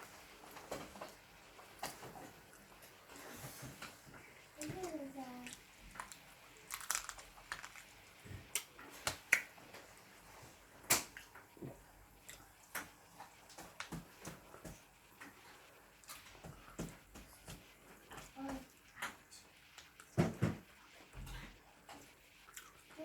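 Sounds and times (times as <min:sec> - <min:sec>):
chewing clicks and smacks: 0:05.4 - 0:09.5.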